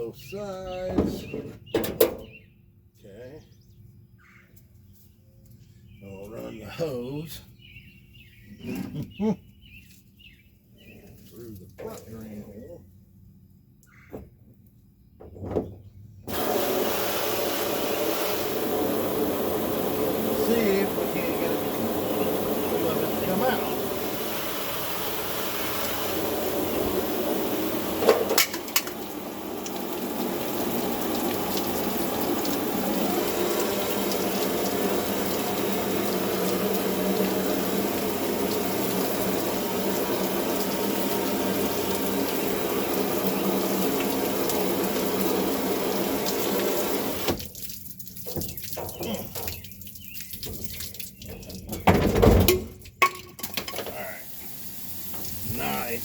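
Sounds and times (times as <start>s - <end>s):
water rushing from garden hose: 16.3s - 56.0s.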